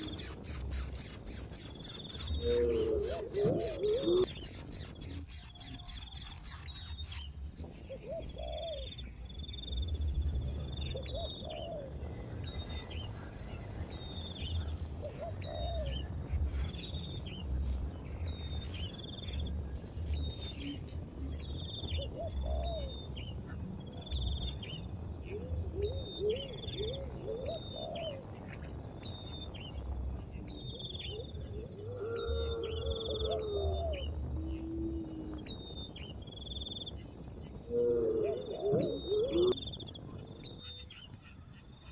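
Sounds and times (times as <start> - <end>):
rising and falling bird calls: 0.0 - 7.3, 37.7 - 39.6
bird chirping: 0.0 - 24.9
insect drone: 0.0 - 41.9.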